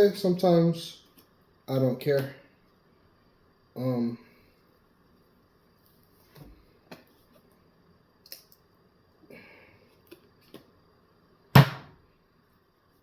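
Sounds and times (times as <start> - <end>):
loud thump: 11.6 - 11.9.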